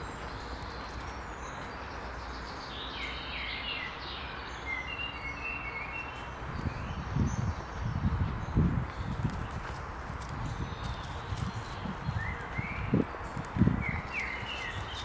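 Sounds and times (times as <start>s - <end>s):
footsteps on leafy dirt path: 0.0s - 2.5s, 7.6s - 15.0s
outdoor background noise: 0.0s - 15.0s
songbird chirping and trilling: 0.0s - 15.0s.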